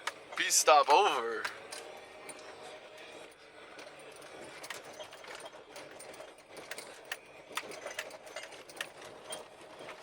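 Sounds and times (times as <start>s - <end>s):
vehicle driving on dirt road: 0.0s - 10.0s.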